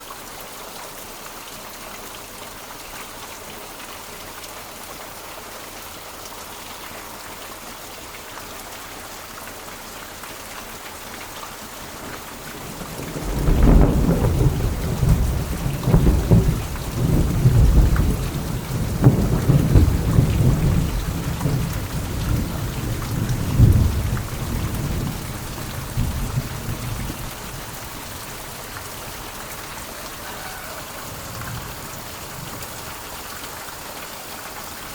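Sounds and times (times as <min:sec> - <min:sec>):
heavy rain falling: 0:00.0 - 0:34.9
thunder rumbling: 0:11.8 - 0:29.9.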